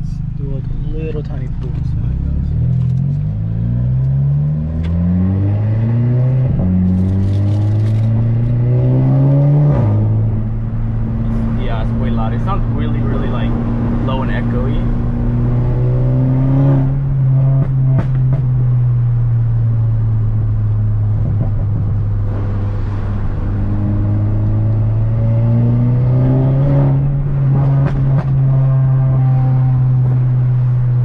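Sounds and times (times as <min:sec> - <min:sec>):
car exhaust drone: 0:00.0 - 0:31.0.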